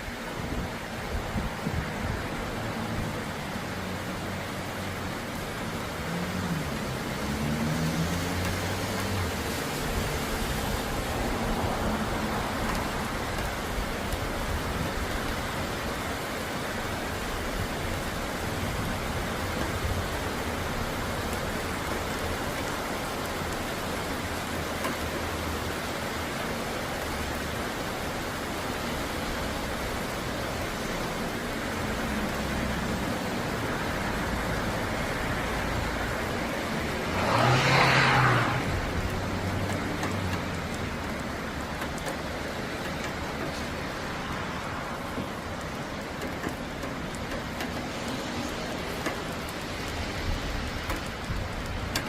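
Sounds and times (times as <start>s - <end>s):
steady rain falling: 0.0s - 52.0s
vehicle passing on wet road: 0.0s - 52.0s.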